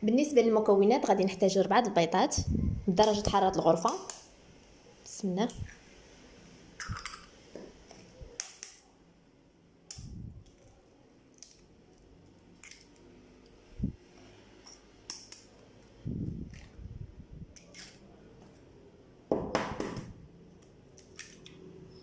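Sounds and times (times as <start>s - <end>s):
eggshells cracking: 11.3s - 13.0s.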